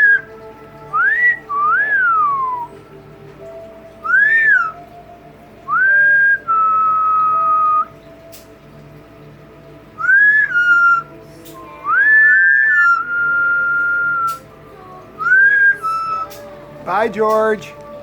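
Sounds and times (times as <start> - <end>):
parrot whistling: 0.0 - 2.8, 4.0 - 4.9, 5.7 - 8.0, 10.0 - 14.5, 15.2 - 16.4.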